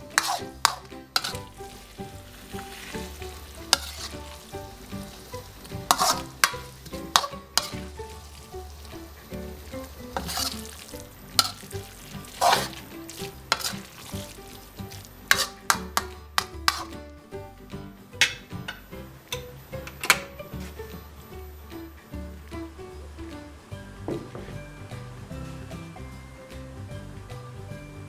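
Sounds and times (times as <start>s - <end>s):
spatula scraping metal wok: 0.0s - 17.0s
steady sizzle: 0.0s - 24.1s.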